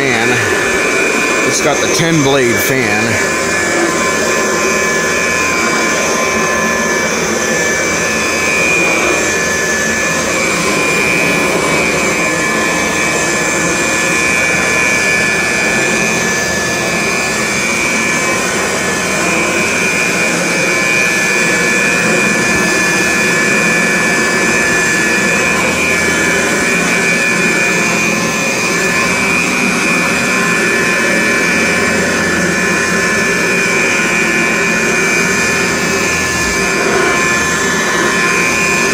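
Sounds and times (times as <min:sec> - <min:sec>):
upright vacuum running: 0:00.0 - 0:38.9.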